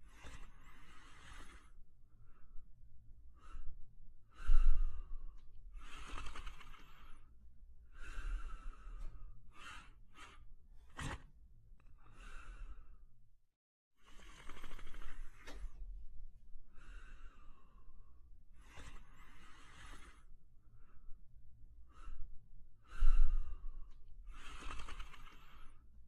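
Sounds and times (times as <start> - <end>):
dog snoring and breathing heavily: 0.0 - 2.4, 5.7 - 7.3, 14.0 - 15.9, 16.7 - 20.4, 22.8 - 25.9.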